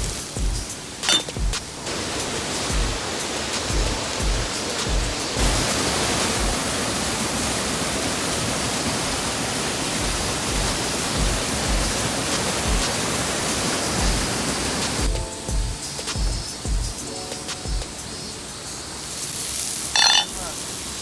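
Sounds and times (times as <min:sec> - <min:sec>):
low thumps: 0:00.0 - 0:01.8, 0:15.0 - 0:18.0
waterfall roaring: 0:00.0 - 0:19.1.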